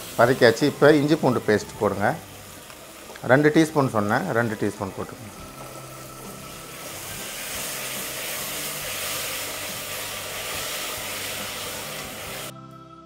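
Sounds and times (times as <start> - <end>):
masala sizzling in hot oil: 0.0 - 12.5
spatula stirring paste: 4.5 - 12.5.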